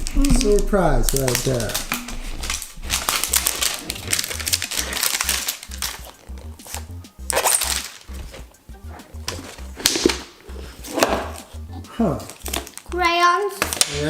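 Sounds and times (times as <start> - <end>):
packaging crinkling and tearing: 0.0 - 8.4, 12.2 - 12.9, 13.6 - 14.0
music with pulsing bass: 0.0 - 13.8.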